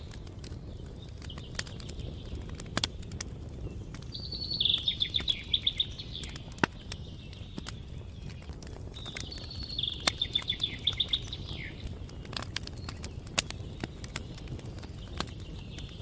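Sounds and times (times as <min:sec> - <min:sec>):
campfire crackling and popping: 0:00.0 - 0:16.0
songbird singing high notes: 0:04.2 - 0:06.3, 0:09.3 - 0:11.8.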